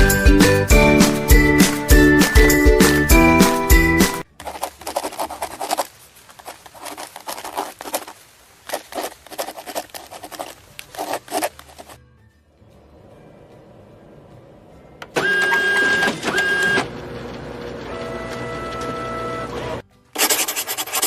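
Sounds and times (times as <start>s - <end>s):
scratching and rustling: 4.3s - 12.0s, 20.2s - 21.0s.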